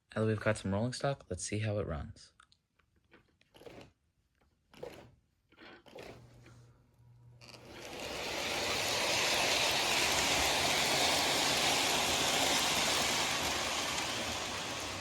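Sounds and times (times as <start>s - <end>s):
model train rumbling on track: 7.7s - 15.0s.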